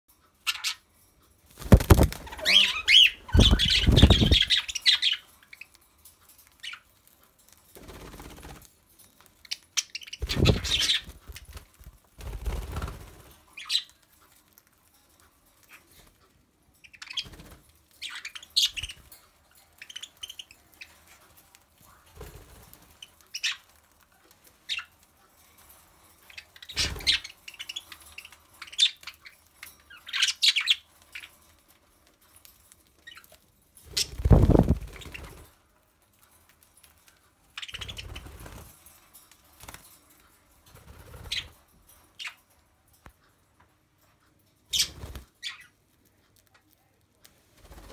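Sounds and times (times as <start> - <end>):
pet birds chirping: 0.3 - 7.8, 9.0 - 35.5, 36.2 - 38.8, 41.0 - 43.4, 44.0 - 47.9
wings flapping and rustling: 1.4 - 15.0, 17.0 - 19.2, 19.8 - 35.6, 36.5 - 42.3, 44.7 - 46.5, 47.2 - 47.9.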